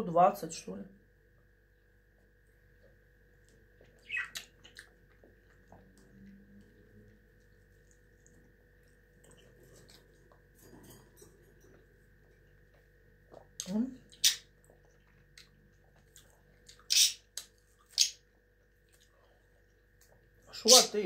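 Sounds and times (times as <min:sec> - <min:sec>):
person chewing fruit: 0:01.8 - 0:20.5
wet mouth sounds: 0:03.8 - 0:06.4.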